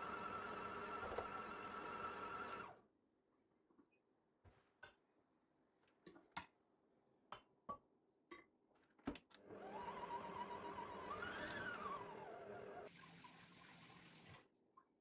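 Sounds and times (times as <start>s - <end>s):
tap water filling a container: 12.9s - 14.5s.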